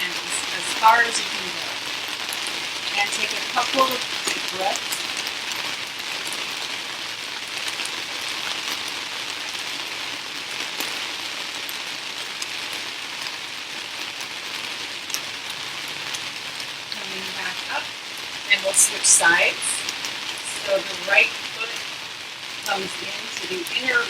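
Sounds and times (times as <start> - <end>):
raindrop ticks: 0.0 - 9.9, 15.0 - 24.0
steady rain hiss: 0.0 - 24.0.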